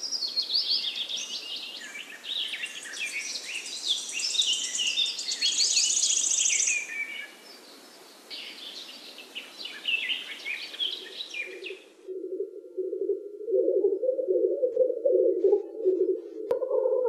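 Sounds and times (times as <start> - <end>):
birds chirping and singing: 0.0 - 7.6, 8.3 - 11.8, 13.5 - 17.0
background hiss: 0.0 - 16.6
low steady tone: 12.1 - 17.0.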